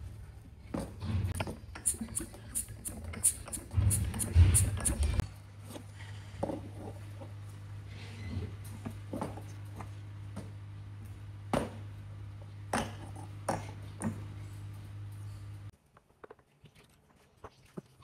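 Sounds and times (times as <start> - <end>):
steady low hum: 0.0 - 15.8
tools and metal parts clicking: 1.4 - 5.2.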